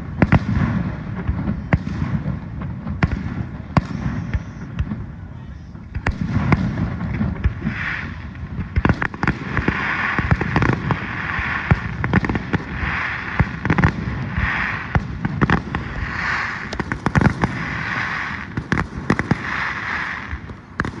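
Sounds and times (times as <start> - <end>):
fireworks bangs and pops: 0.0 - 21.0
fireworks hissing crackle: 0.0 - 21.0.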